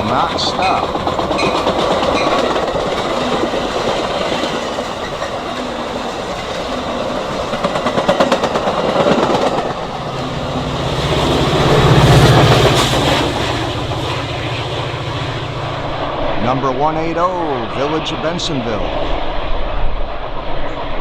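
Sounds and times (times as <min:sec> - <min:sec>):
train wheels clicking over rail joints: 0:00.0 - 0:15.3
diesel locomotive engine drone: 0:00.0 - 0:21.0.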